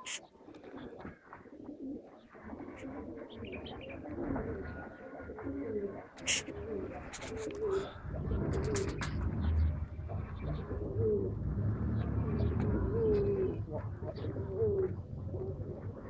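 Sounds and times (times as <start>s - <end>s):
pigeons cooing: 0.0s - 16.0s
low rumble: 7.8s - 16.0s.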